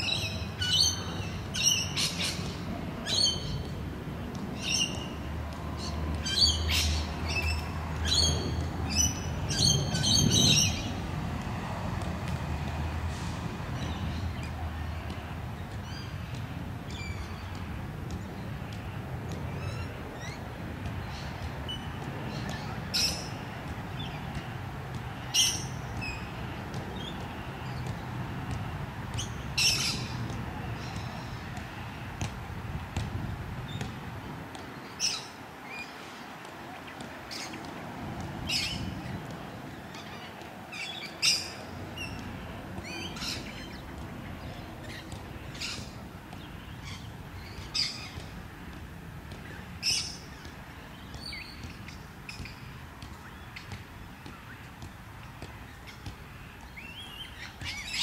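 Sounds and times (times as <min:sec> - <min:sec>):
birds chirping: 0:38.4 - 0:58.0.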